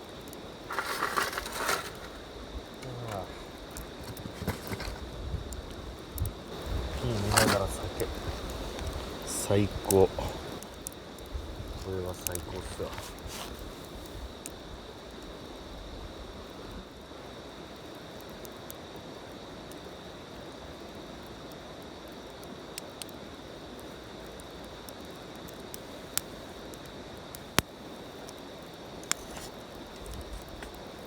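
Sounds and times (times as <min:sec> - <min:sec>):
campfire hissing: 0:00.0 - 0:31.0
fire crackling pops: 0:00.0 - 0:31.0.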